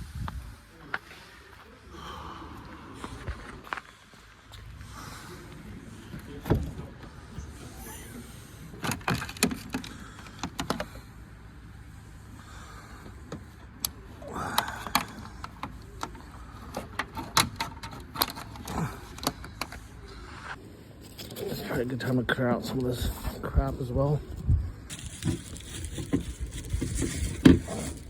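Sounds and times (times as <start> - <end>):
clicks and knocks of handling: 8.8 - 10.9, 14.6 - 19.9.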